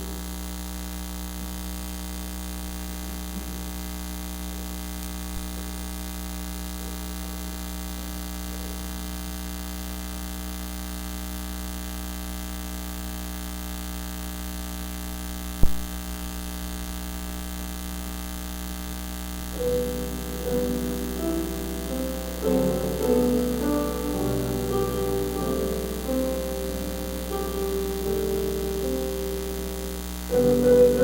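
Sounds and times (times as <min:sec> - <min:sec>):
electrical mains hum and buzz: 0:00.0 - 0:31.0
keyboard music: 0:19.5 - 0:31.0.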